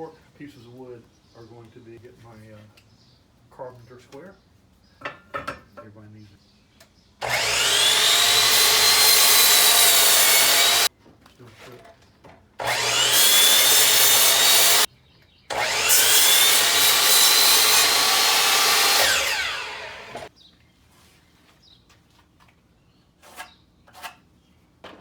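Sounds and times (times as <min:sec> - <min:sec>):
power saw cutting wood: 0:07.2 - 0:10.9, 0:12.6 - 0:14.9, 0:15.5 - 0:20.3.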